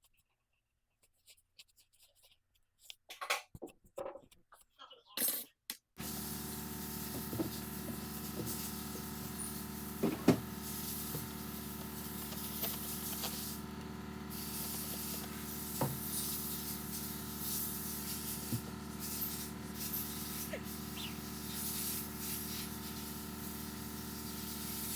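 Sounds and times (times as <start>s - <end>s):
shop hum and hiss: 6.0s - 24.9s.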